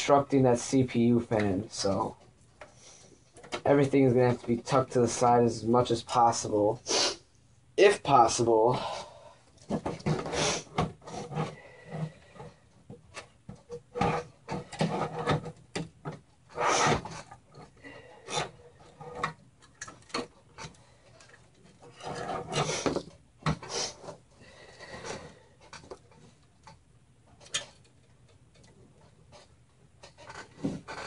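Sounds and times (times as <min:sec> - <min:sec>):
cables rustling and scraping: 0:09.5 - 0:31.0.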